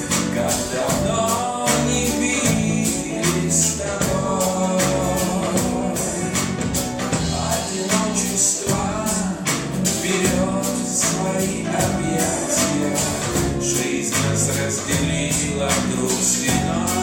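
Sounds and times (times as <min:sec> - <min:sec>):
live band playing: 0:00.0 - 0:17.0
person singing: 0:00.0 - 0:17.0.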